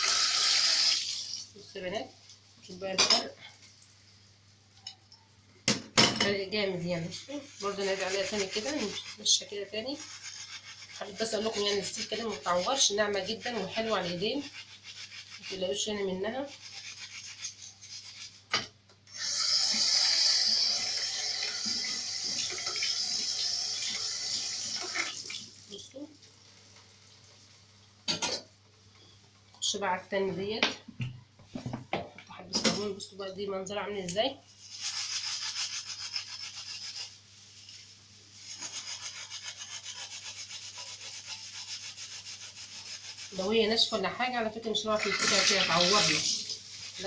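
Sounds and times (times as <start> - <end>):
water running into sink: 0.0 - 1.5, 19.1 - 26.9, 44.9 - 47.0
steel wool scrubbing metal: 6.6 - 18.5, 34.6 - 43.7.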